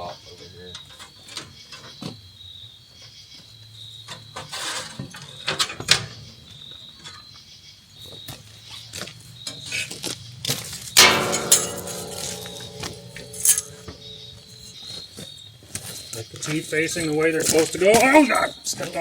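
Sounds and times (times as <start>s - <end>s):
metallic clicks and knocks: 11.0s - 14.7s.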